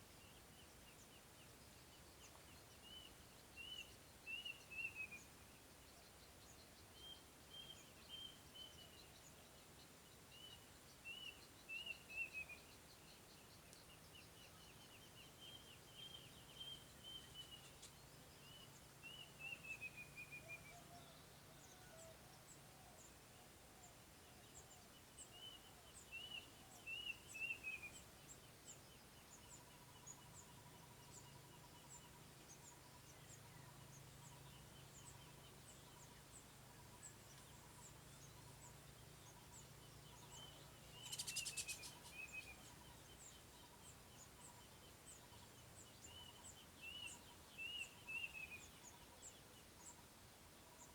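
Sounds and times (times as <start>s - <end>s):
faint bird calls: 29.4s - 50.9s.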